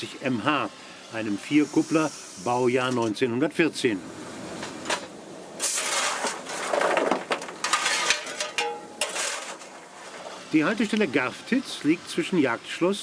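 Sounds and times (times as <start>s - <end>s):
steam locomotive hissing steam: 0.0s - 4.8s, 10.1s - 13.0s
light metallic clatter: 4.6s - 9.7s.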